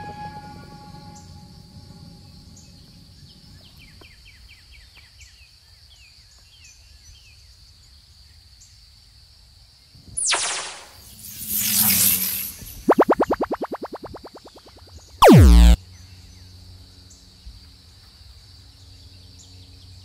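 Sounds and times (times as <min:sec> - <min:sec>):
sweep dropping in pitch: 0:10.2 - 0:15.8.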